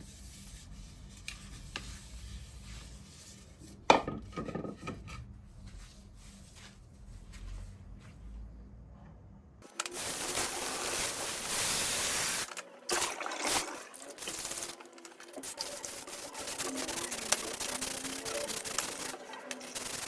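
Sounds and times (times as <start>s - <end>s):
sandpaper rubbing on wood: 15.4s - 20.0s.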